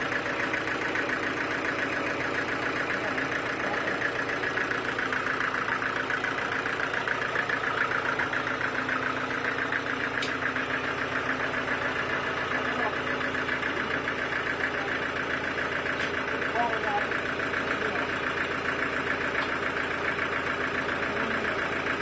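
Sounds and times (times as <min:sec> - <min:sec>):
sawmill machinery pulsing: 0:00.0 - 0:22.0.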